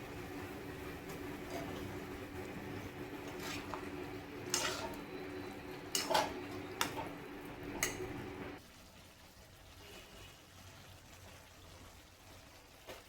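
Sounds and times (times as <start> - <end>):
steady low hum: 0.0 - 8.6
metal spoon clinking in a pot: 4.4 - 8.3.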